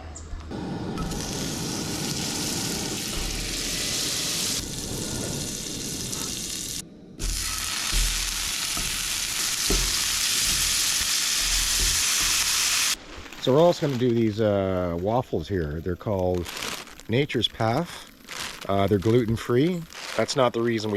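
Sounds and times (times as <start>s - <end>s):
sausages sizzling in a frying pan: 1.0s - 13.0s.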